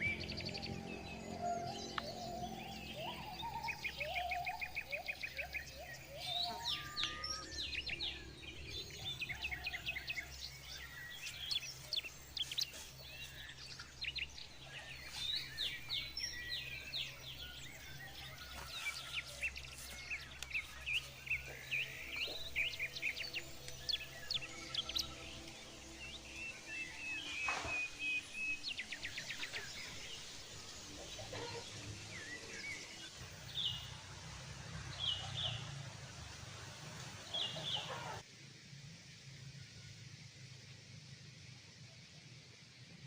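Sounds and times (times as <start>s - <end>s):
birds chirping: 0.0s - 38.2s.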